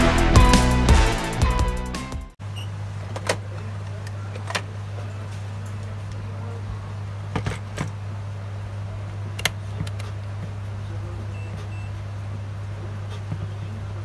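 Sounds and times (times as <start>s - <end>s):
low electrical hum: 2.4s - 14.0s.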